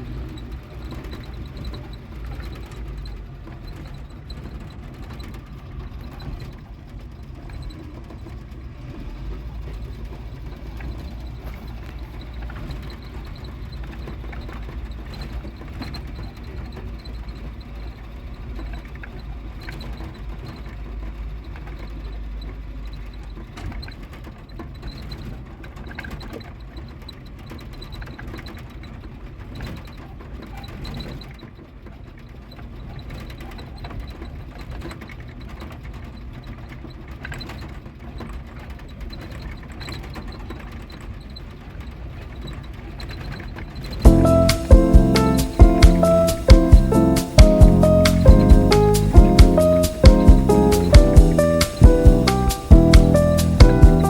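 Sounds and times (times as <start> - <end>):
vehicle engine and road rumble: 0.0 - 24.7.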